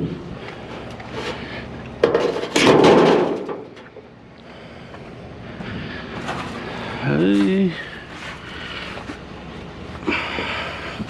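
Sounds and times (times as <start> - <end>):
scrap metal clatter: 1.1 - 3.9.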